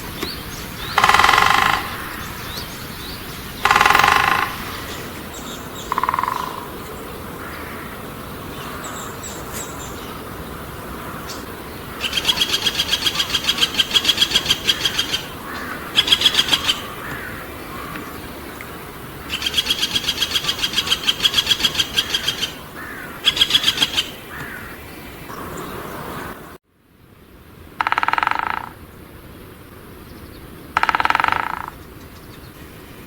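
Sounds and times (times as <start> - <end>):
faint chirps of other birds: 0.0 - 26.4.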